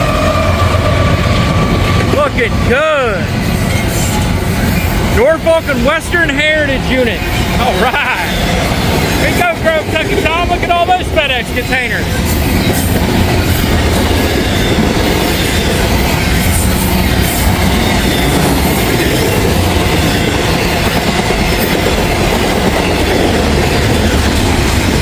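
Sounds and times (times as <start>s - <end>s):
freight train wheels on rails: 0.0s - 25.0s.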